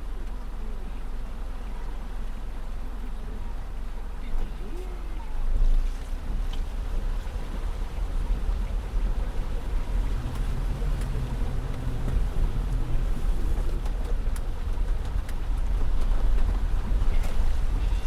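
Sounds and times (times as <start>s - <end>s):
water sloshing against car: 0.0s - 18.0s
low rumble: 5.0s - 18.0s.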